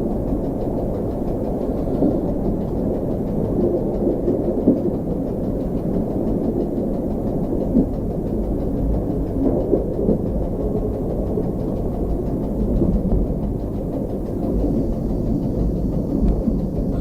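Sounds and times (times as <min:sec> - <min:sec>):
diesel train rumbling: 0:00.0 - 0:17.0
wheels knocking: 0:06.0 - 0:17.0.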